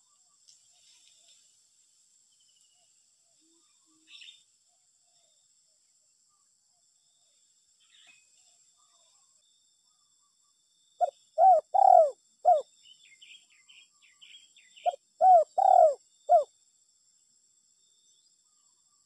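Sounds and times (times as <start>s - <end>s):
dove cooing: 11.0s - 12.7s, 14.8s - 16.5s.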